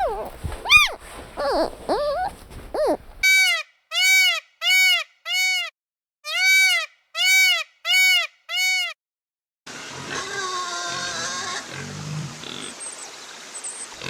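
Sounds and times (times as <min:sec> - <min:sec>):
short pitched animal call: 0:00.0 - 0:03.2.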